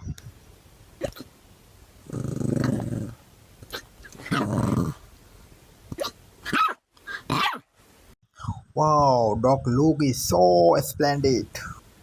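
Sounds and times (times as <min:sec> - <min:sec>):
dog barking and growling: 0:02.0 - 0:05.0, 0:05.9 - 0:07.7.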